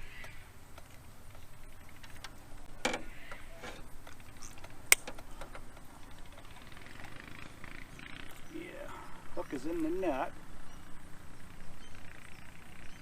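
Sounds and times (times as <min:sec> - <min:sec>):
handling clicks and knocks: 0:00.7 - 0:07.2.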